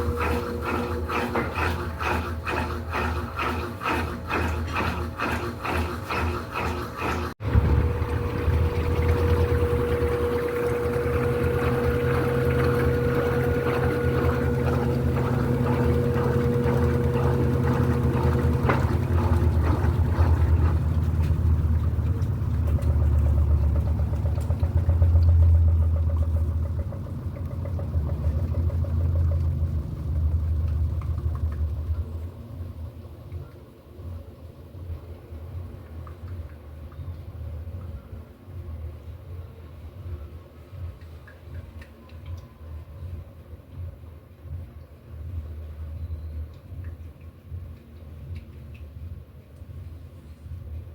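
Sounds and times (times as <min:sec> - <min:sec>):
washing machine motor hum: 0:00.0 - 0:50.9
high whine: 0:07.4 - 0:22.3.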